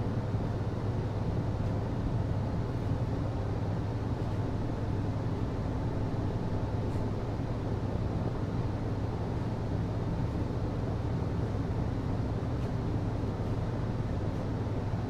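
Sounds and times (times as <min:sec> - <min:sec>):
ventilation system humming: 0:00.0 - 0:15.0.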